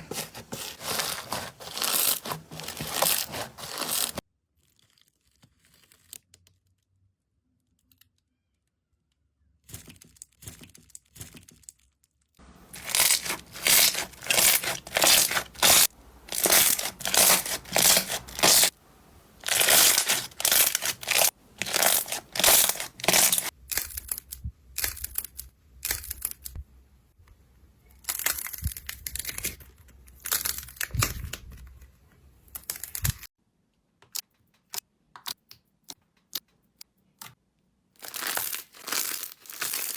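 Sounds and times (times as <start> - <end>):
slime crackling and crunching: 0.0 - 6.1, 12.6 - 18.7, 19.4 - 24.2, 38.0 - 39.9.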